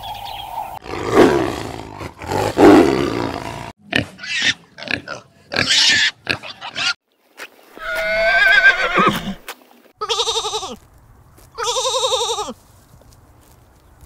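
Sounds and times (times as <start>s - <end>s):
pig grunts: 0.8s - 7.0s
lamb bleating: 10.0s - 10.8s, 11.6s - 12.6s.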